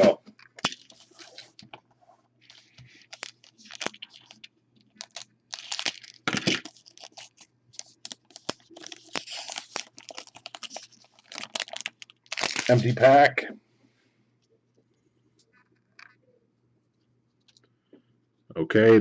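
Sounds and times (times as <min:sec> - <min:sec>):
card pack wrapper tearing and crinkling: 0:00.5 - 0:01.6, 0:02.4 - 0:13.2.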